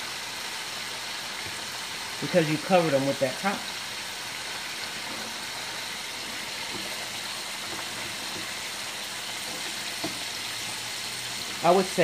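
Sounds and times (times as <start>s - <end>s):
potatoes sizzling in oil: 0.0s - 12.0s
spatula knocking: 6.3s - 11.7s.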